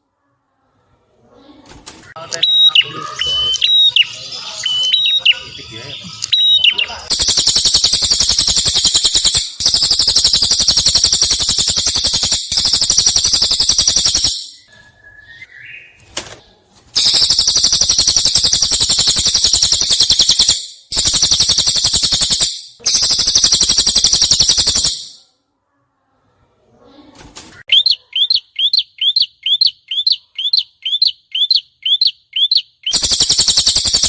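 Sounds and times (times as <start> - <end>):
bird rapid rattling song: 6.3 - 14.7, 17.0 - 25.2, 27.7 - 34.0.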